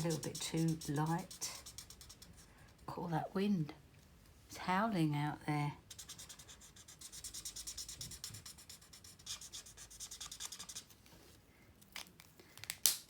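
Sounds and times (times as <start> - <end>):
marker scratching over card: 0.0 - 2.4, 5.9 - 10.9.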